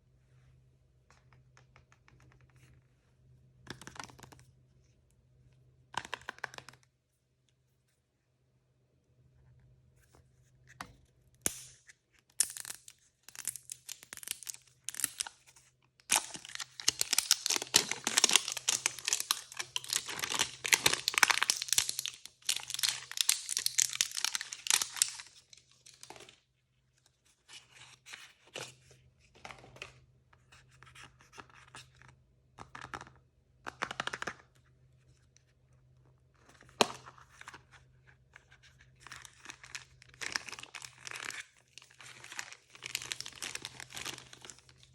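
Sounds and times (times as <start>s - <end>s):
plastic packaging tearing and crinkling: 16.1s - 26.3s, 39.3s - 44.9s.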